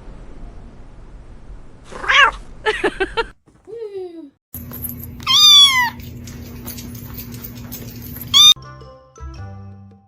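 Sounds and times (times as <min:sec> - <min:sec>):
cat meowing: 0:01.9 - 0:02.4, 0:05.2 - 0:06.0, 0:08.3 - 0:08.6.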